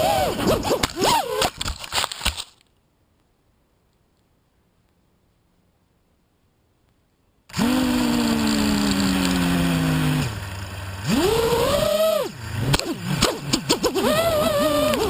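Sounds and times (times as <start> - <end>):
drone motors whining: 0.0 - 1.6, 7.5 - 15.0.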